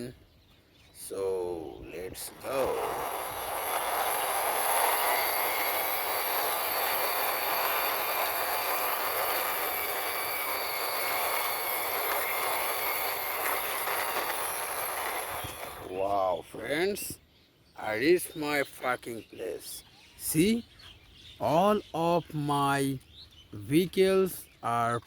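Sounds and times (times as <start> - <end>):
toy truck wheels rolling rattle: 2.0 - 17.1.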